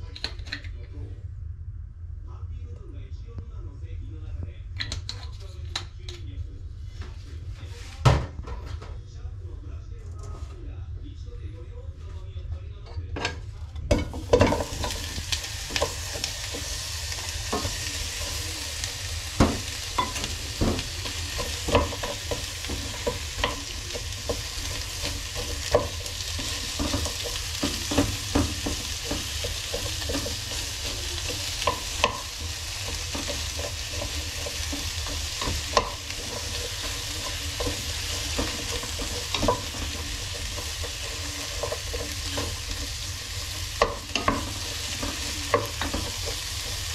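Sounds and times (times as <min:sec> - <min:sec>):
vegetables sizzling in oil: 0:14.0 - 0:46.9
utensil knocking against pan: 0:19.3 - 0:46.9.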